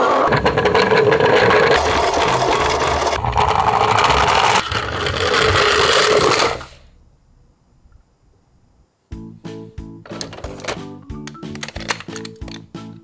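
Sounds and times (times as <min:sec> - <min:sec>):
toy motors whirring and rattling: 0:00.3 - 0:06.8.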